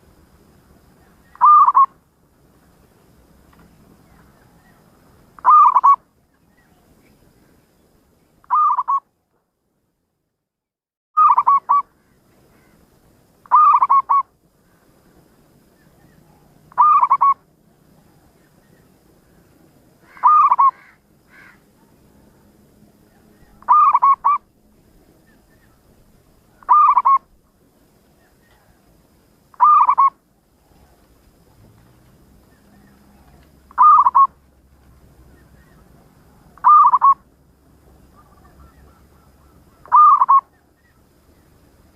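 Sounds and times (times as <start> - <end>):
dove cooing: 1.0 - 2.0, 5.4 - 6.0, 8.5 - 9.0, 11.2 - 11.8, 13.5 - 14.3, 16.0 - 18.4, 20.0 - 22.4, 23.1 - 24.5, 26.5 - 27.4, 29.5 - 31.2, 32.4 - 34.4, 35.4 - 37.3, 38.0 - 41.0.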